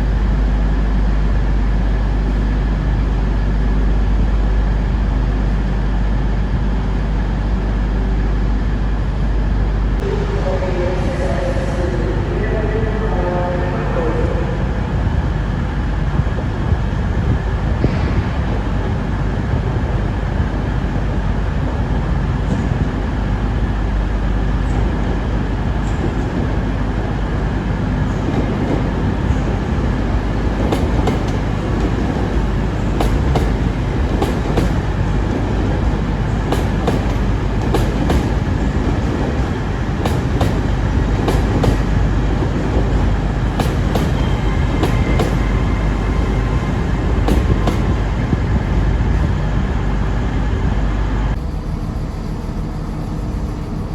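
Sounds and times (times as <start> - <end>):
train rumbling: 0.0 - 53.9
wheels clicking over rail joints: 30.3 - 46.3.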